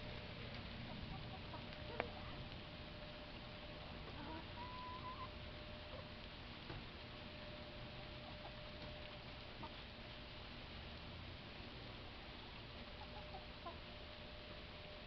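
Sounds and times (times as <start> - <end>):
chicken calling: 0.0 - 2.8, 3.7 - 6.1, 7.8 - 8.9, 12.8 - 14.0
rain patter: 0.0 - 15.0.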